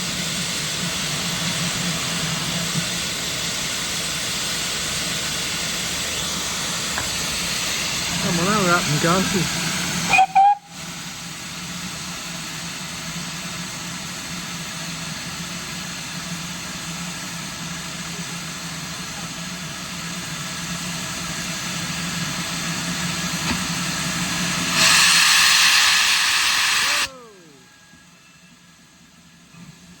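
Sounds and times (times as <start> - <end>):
loud hiss of released steam: 0.0 - 30.0
train engine hum: 0.0 - 30.0.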